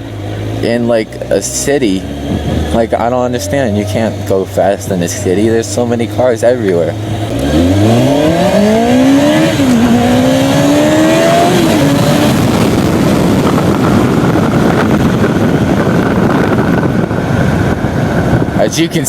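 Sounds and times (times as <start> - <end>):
motorcycle engine accelerating hard: 0.0 - 19.0
wind rushing on microphone: 2.2 - 6.2, 6.9 - 19.0.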